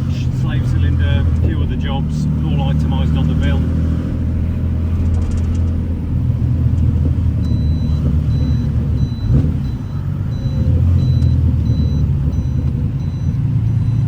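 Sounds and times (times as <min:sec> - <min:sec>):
car engine running: 0:00.0 - 0:14.0
high electronic beep: 0:07.4 - 0:14.0.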